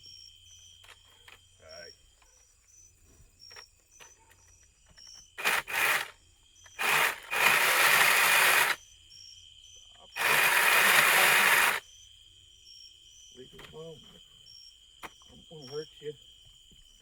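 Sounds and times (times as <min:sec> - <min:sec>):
crickets chirping: 0:00.0 - 0:17.0
pole saw cutting wood: 0:05.4 - 0:06.1, 0:06.8 - 0:08.8, 0:10.2 - 0:11.8.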